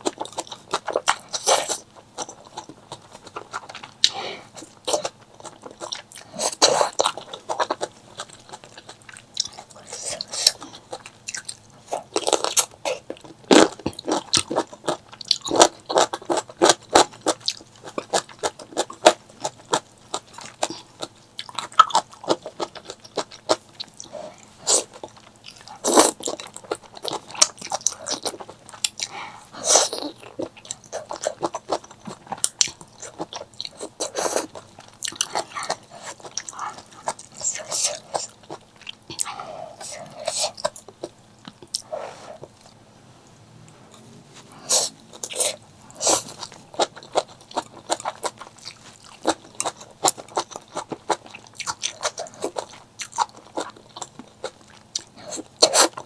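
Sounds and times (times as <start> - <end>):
food chewing and crunching: 0.0 - 56.0.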